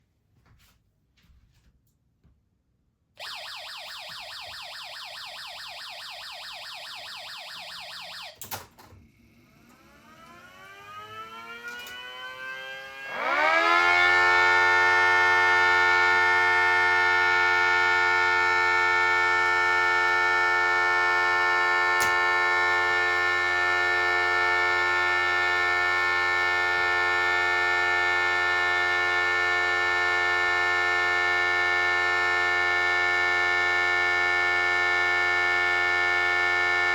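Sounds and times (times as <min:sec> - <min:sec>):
warning sirens: 0:03.2 - 0:08.5, 0:09.8 - 0:36.9.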